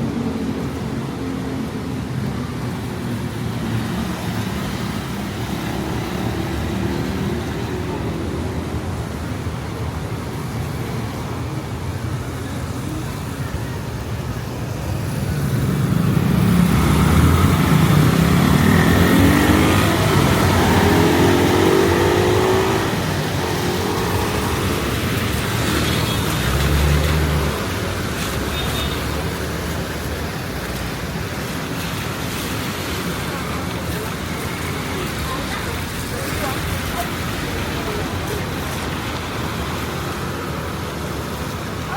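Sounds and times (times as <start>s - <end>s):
street traffic: 0.0s - 41.9s
vehicle passing: 15.3s - 31.2s
vehicle accelerating past: 15.6s - 25.8s.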